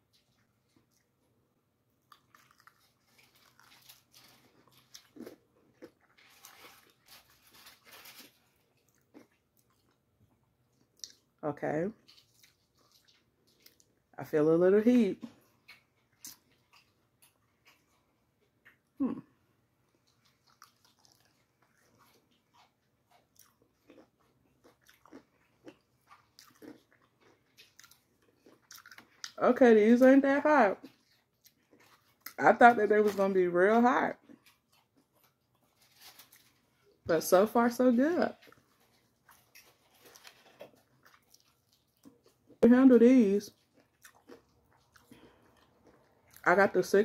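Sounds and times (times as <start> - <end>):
person crunching fried chicken: 2.0 - 10.1, 20.0 - 29.4, 38.4 - 42.6, 43.6 - 46.4.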